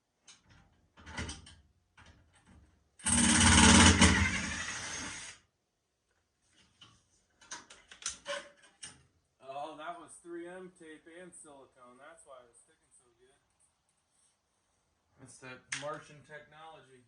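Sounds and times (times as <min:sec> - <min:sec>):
cordless drill running: 0:03.0 - 0:05.4.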